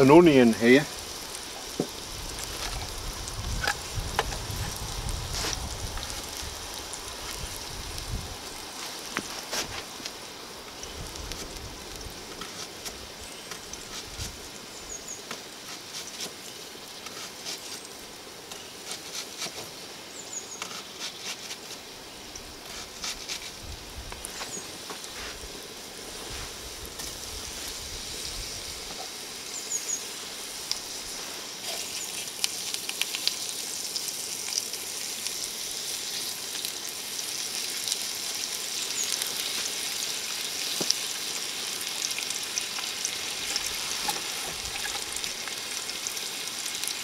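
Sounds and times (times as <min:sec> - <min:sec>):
fire clicks and crackles: 0:00.0 - 0:47.0
pumpkin sizzling in a wok: 0:00.0 - 0:47.0.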